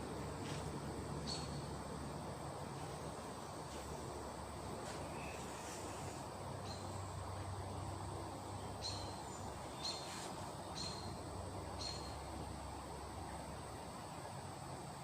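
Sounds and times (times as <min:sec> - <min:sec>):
low steady hum: 0:00.0 - 0:15.0
small bird chirping: 0:01.2 - 0:01.7, 0:08.6 - 0:12.3.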